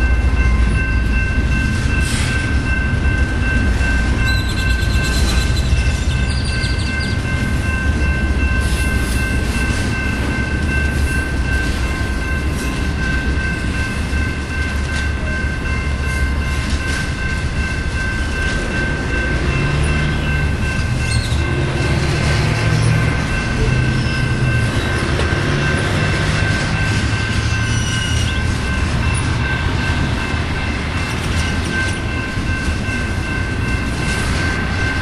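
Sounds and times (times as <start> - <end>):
wheels rumbling on rails: 0.0 - 35.0.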